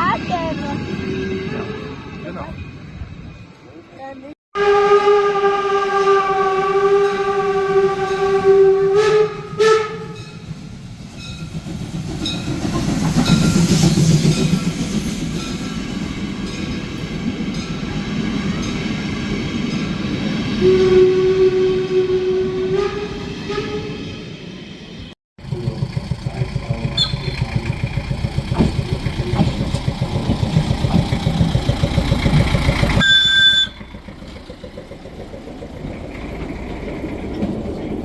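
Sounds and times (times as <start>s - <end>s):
railcar running and rolling: 0.0s - 38.0s
railcar horn blasts: 1.0s - 2.4s, 4.6s - 10.6s, 20.4s - 24.4s, 33.0s - 33.9s.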